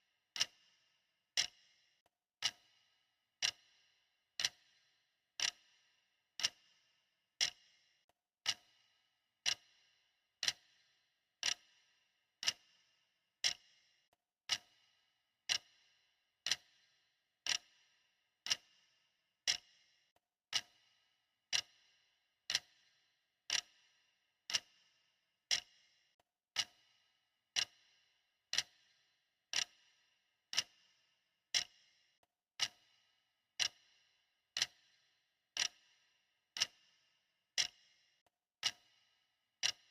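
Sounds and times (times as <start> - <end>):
clock ticking: 0.4 - 0.6, 1.4 - 1.6, 3.4 - 3.7, 4.4 - 4.6, 5.4 - 5.6, 6.4 - 6.6, 7.4 - 7.6, 8.4 - 8.7, 10.4 - 10.6, 17.5 - 17.7, 18.5 - 18.7, 33.6 - 33.8, 34.6 - 34.8, 35.6 - 35.8, 36.6 - 36.8, 37.6 - 37.8, 39.6 - 39.9.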